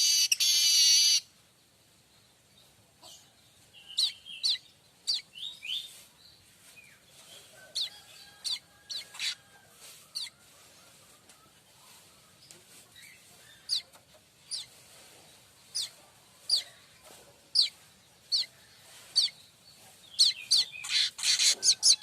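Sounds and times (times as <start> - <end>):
bird harsh buzzy song: 0.0 - 1.4, 20.1 - 22.0.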